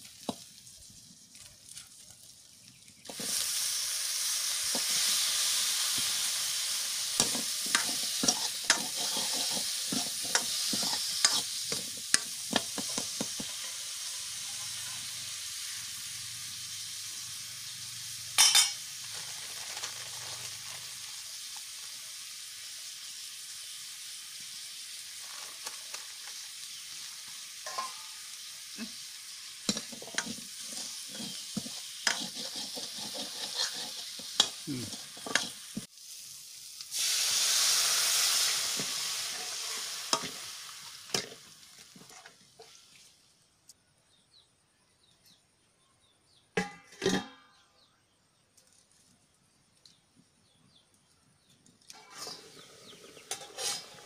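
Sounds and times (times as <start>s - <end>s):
food sizzling in a pan: 0.0s - 43.6s, 51.9s - 54.0s
liquid hissing in hot pan: 3.0s - 43.1s
ladle scraping pan: 7.2s - 13.9s, 27.6s - 28.1s, 29.6s - 35.9s, 52.0s - 54.0s.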